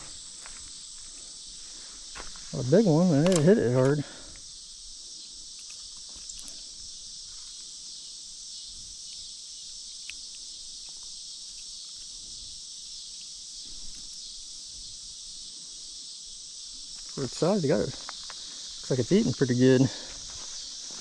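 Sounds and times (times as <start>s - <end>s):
high-pitched insect chorus: 0.0s - 21.0s
faint clicks: 17.9s - 18.6s.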